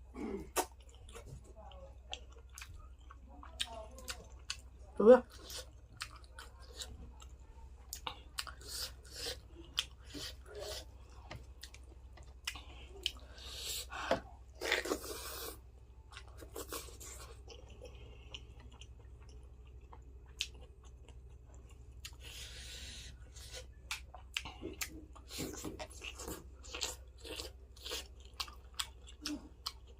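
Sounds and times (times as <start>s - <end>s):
person chewing food: 0.0s - 29.9s.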